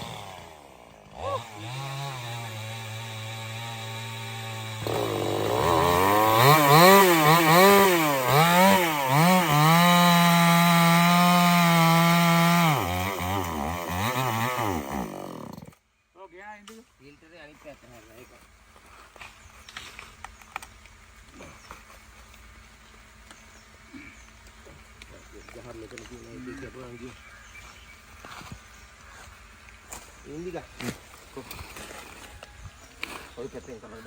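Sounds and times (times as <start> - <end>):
chainsaw revving: 0.0 - 15.8.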